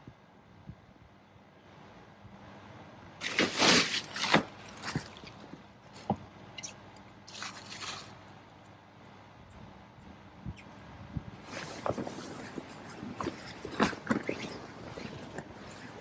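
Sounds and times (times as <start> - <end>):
sailcloth rustling and scraping: 3.2 - 6.7, 7.3 - 8.2, 11.4 - 16.0.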